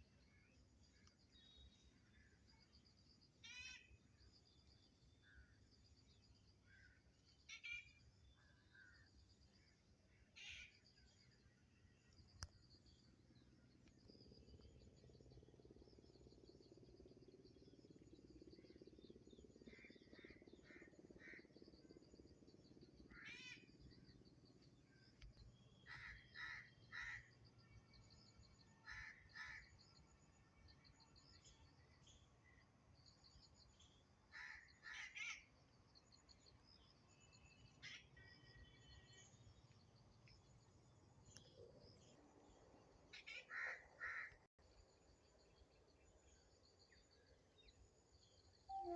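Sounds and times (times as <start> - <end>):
faint high-pitched chirping: 0.0 - 43.9, 44.7 - 48.9.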